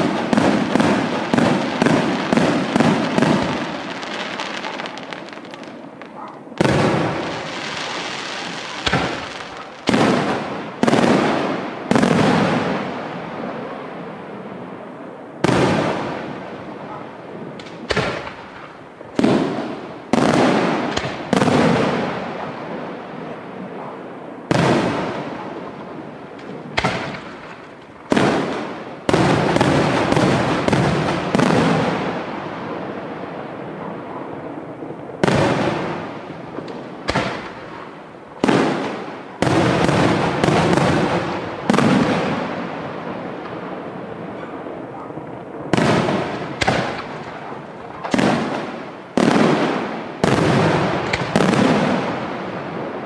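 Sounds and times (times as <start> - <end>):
firework shells bursting: 45.8 - 49.2.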